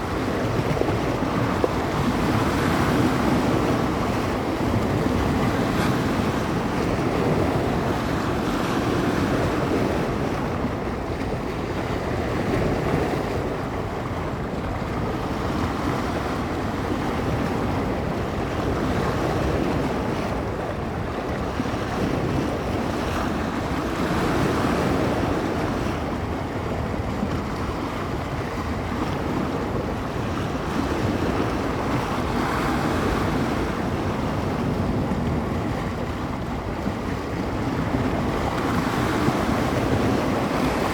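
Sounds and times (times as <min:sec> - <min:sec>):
waves washing onto shore: 0:00.0 - 0:40.9
wind rumbling on microphone: 0:00.0 - 0:40.9.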